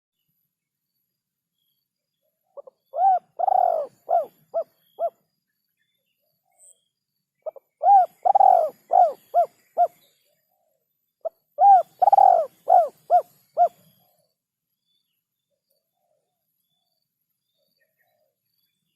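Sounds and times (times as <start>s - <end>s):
dove cooing: 2.6s - 5.2s, 7.4s - 10.0s, 11.6s - 13.8s.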